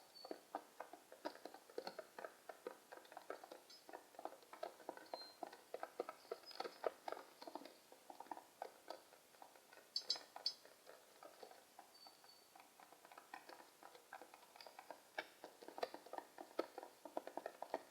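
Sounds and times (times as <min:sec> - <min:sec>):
faint high chirps: 0:11.9 - 0:12.5.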